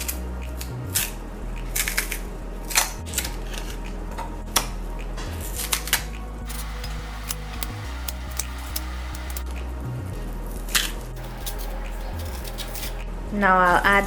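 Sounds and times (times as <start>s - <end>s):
soft background music: 0.0s - 14.0s
kitchenware clicks and knocks: 6.5s - 9.4s, 11.2s - 13.0s.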